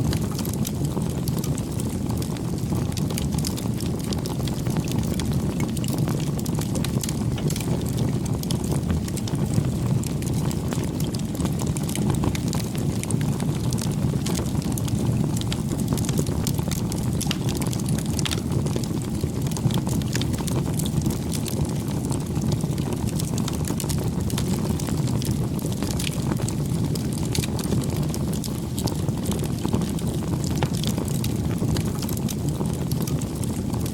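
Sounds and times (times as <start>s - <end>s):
campfire crackling: 0.0s - 33.9s.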